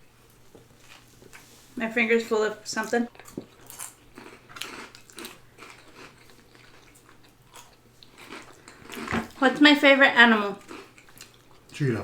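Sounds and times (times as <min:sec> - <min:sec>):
person chewing food: 0:00.2 - 0:01.6, 0:03.1 - 0:09.4, 0:10.6 - 0:11.8.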